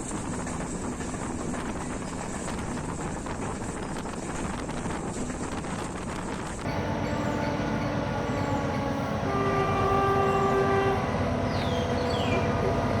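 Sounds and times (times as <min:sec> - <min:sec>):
train running noise: 0:00.0 - 0:13.0
train horn blast: 0:06.7 - 0:13.0.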